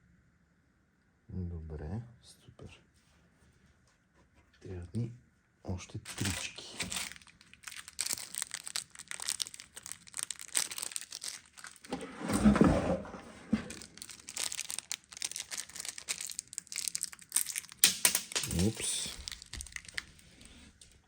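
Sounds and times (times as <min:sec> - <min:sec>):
packaging rustling and crinkling: 0:06.0 - 0:21.0.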